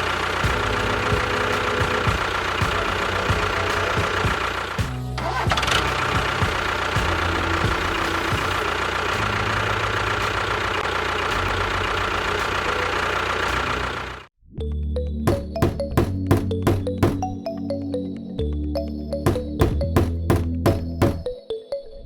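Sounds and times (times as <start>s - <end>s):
small engine running: 0.0s - 14.3s
music: 0.4s - 8.6s, 14.6s - 22.0s.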